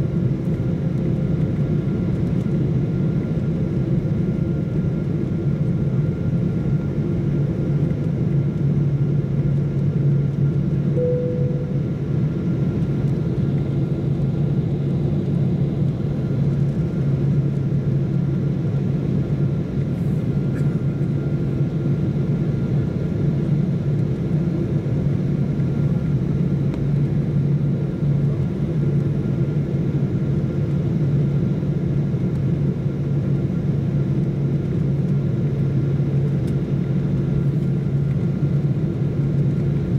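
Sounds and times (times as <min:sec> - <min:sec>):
airliner cabin engine rumble: 0:00.0 - 0:39.9
faint high whine: 0:10.9 - 0:12.6
short tone: 0:11.0 - 0:12.0.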